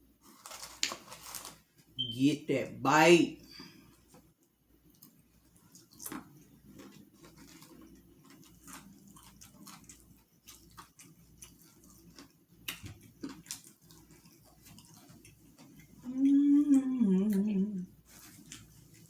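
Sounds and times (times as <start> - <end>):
chewing with mouth clicks: 4.9 - 17.4, 18.0 - 19.0
lip smacks: 8.3 - 16.0.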